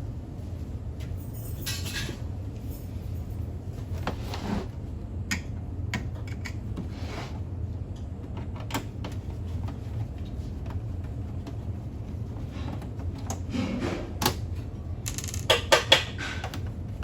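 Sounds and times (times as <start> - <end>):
steady low hum: 0.0 - 17.0
parts clicking and knocking: 15.0 - 16.7.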